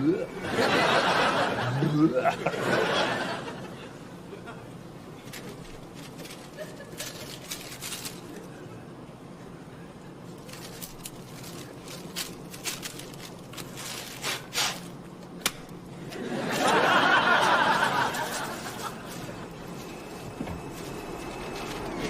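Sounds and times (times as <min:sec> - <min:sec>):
studio audience laughing: 0:00.4 - 0:04.8, 0:16.0 - 0:19.6.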